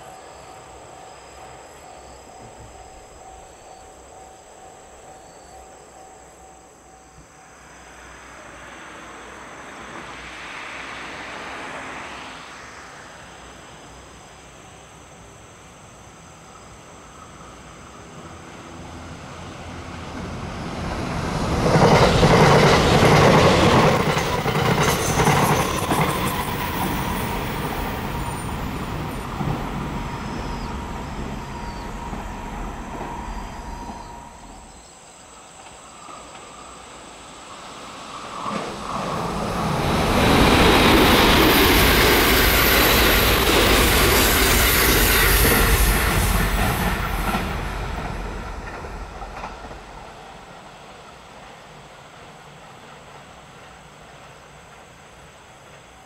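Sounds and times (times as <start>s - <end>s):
electric train passing: 0.0s - 56.0s.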